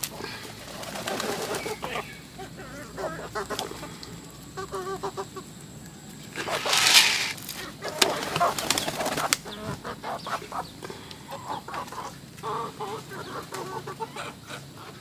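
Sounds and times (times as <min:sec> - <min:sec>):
pigeons calling: 0:00.0 - 0:15.0
pigeon wing flaps: 0:00.5 - 0:01.8, 0:06.4 - 0:09.4.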